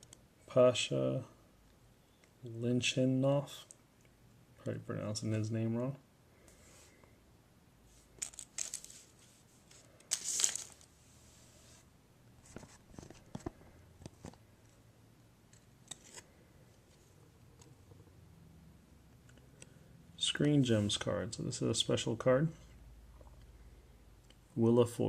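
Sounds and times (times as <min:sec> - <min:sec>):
cards clicking: 0:08.2 - 0:09.0
wrapper rustling: 0:08.2 - 0:09.2, 0:09.8 - 0:10.9.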